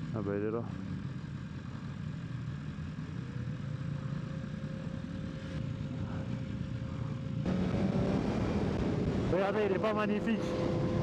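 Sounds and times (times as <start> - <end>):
faint steady whine: 0.0 - 7.5.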